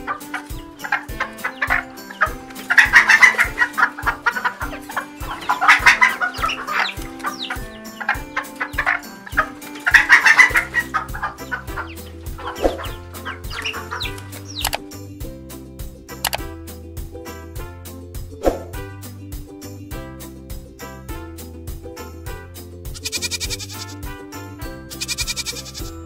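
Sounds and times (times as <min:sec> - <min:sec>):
chicken clucking: 0:00.0 - 0:14.8, 0:23.0 - 0:24.0, 0:25.0 - 0:26.0
background music with steady beat: 0:00.0 - 0:26.0.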